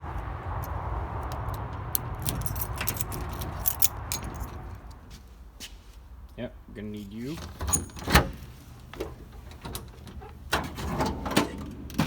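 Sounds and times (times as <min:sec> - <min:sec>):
low steady rumble: 0:00.0 - 0:07.2
light metallic clinks and rattles: 0:00.6 - 0:05.0.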